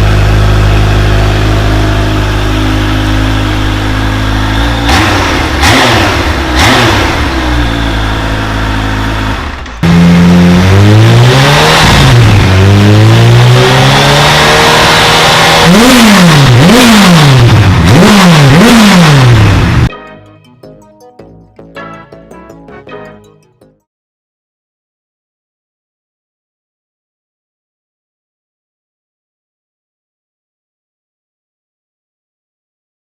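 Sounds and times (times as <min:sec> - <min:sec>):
motorcycle engine idling and revving: 0:00.0 - 0:19.9.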